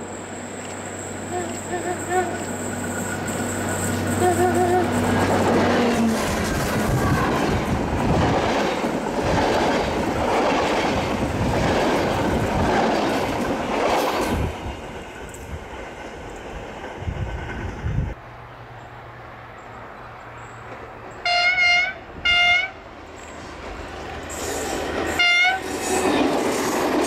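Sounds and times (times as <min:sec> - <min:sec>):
train wheels clattering past: 0:00.6 - 0:17.9, 0:23.1 - 0:27.0.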